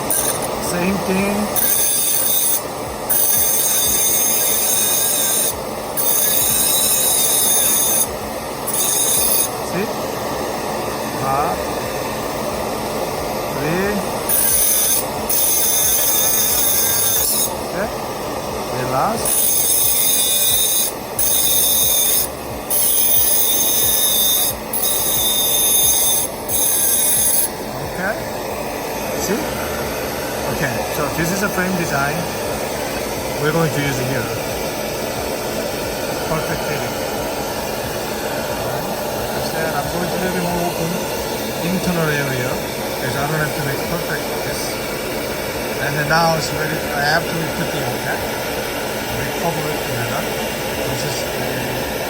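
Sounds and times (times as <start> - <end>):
dental drill whining and grinding: 0.0 - 52.0.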